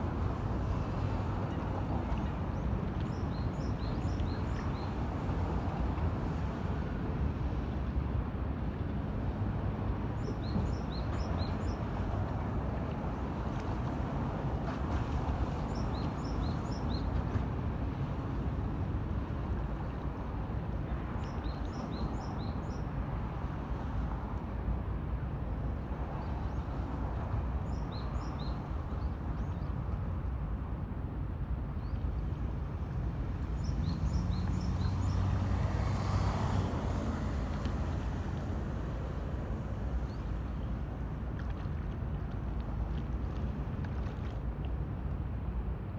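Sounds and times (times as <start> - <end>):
low outdoor rumble: 30.2 - 45.9.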